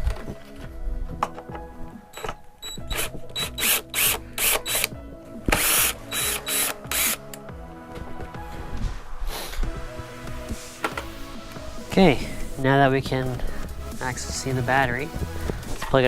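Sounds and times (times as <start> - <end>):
background music: 0.0 - 16.0
tool rasping bursts: 2.8 - 4.9, 5.5 - 7.3.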